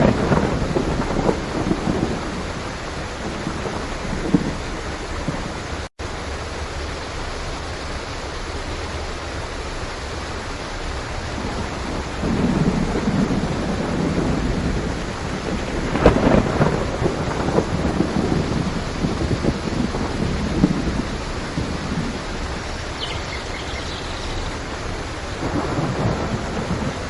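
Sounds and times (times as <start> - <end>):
crackling thunder claps: 0.0 - 5.6, 11.3 - 27.0
thunder rumble: 0.0 - 5.8, 11.3 - 27.0
heavy rain hiss: 0.0 - 27.0.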